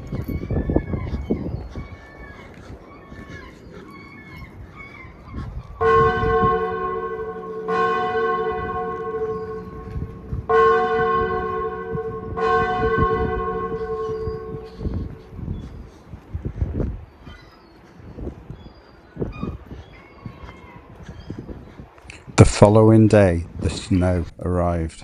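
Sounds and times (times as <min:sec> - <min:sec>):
bell ringing: 0:05.8 - 0:15.4.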